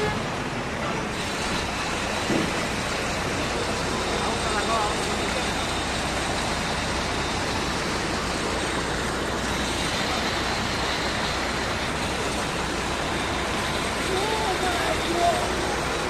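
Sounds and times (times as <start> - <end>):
rushing floodwater roar: 0.0 - 16.0.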